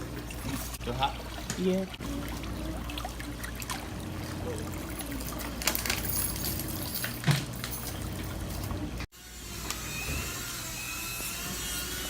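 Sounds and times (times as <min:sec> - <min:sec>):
water pouring and trickling: 0:00.0 - 0:09.1.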